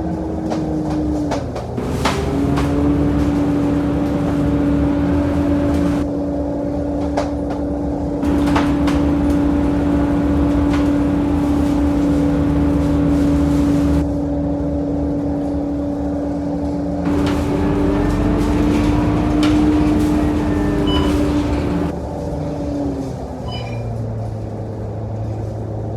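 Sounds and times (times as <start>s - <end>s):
road rumble: 0.0s - 6.1s, 8.2s - 14.1s, 17.0s - 23.4s
bus engine whine: 1.6s - 6.1s, 8.2s - 14.1s, 17.0s - 24.4s.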